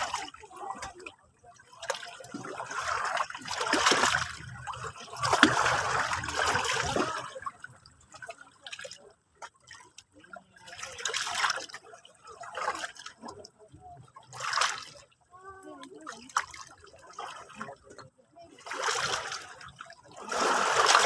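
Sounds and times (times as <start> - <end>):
water trickling and splashing: 0.0 - 21.0
sea waves washing on shore: 18.5 - 21.0.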